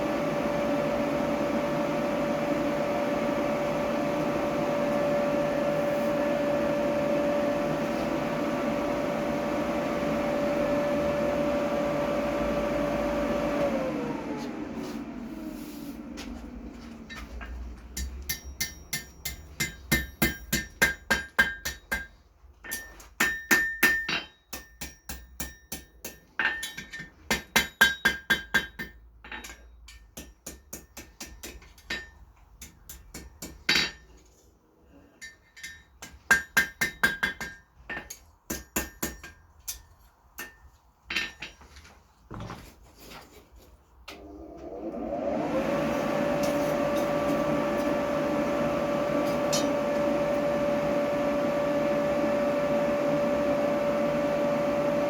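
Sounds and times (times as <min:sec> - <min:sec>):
hammer striking metal on anvil: 0:18.0 - 0:34.0, 0:35.2 - 0:41.6, 0:49.2 - 0:50.1.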